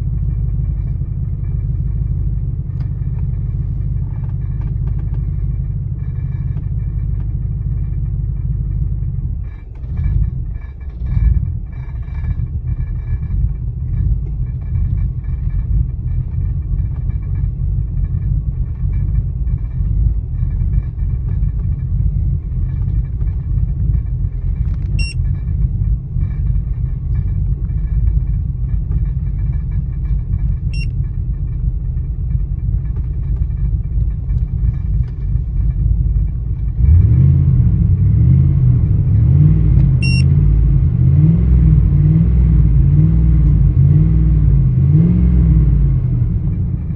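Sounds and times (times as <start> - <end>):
car engine idling roughly: 0.0 - 40.2, 42.8 - 46.9
short high chirps: 40.0 - 40.2.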